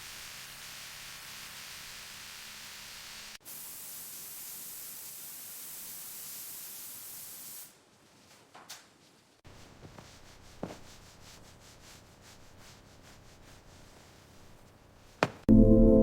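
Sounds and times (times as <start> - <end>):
spray hissing: 0.0 - 7.8.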